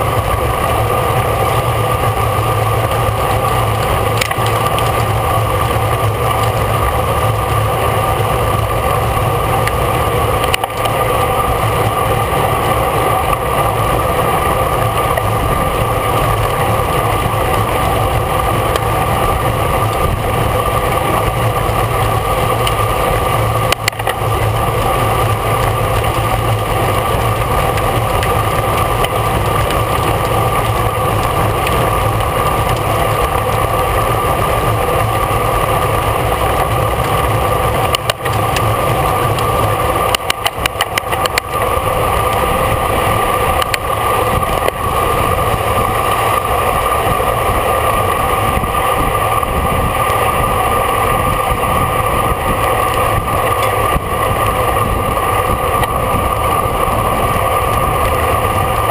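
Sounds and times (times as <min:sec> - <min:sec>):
constant hum: 0:00.0 - 0:58.9
road noise: 0:00.0 - 0:58.9
rushing wind: 0:00.0 - 0:58.9.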